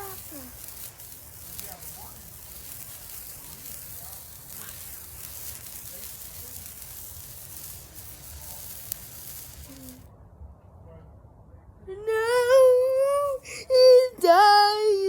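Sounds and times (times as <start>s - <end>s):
firework hissing: 0.0s - 10.1s.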